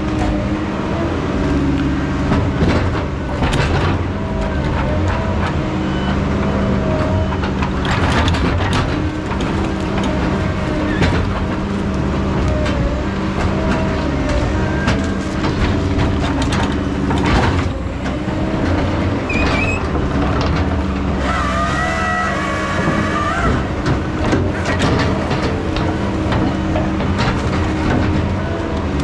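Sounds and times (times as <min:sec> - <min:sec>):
machinery engine drone: 0:00.0 - 0:29.0
high metal squealing: 0:19.2 - 0:19.9, 0:21.1 - 0:23.9.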